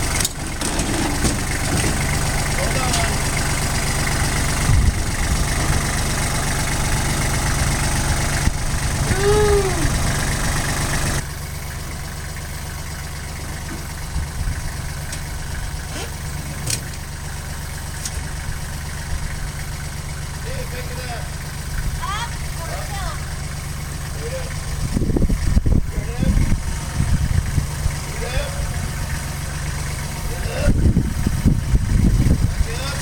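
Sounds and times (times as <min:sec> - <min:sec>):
loader engine idling: 0:00.0 - 0:33.0.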